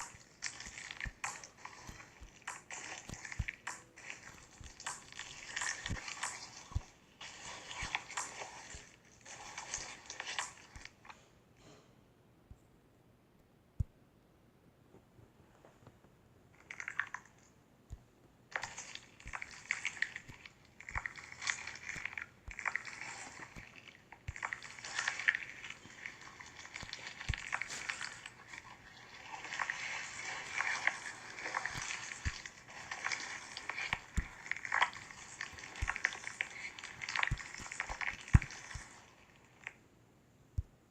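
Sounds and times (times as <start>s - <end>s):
slime crackling and popping: 0.0s - 8.9s, 18.5s - 39.8s.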